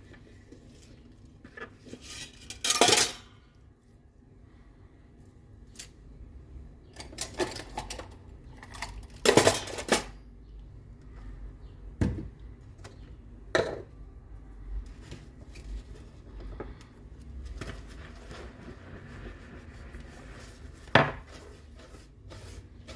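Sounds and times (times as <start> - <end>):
dishes and cutlery clattering: 2.0 - 3.4, 7.0 - 10.2.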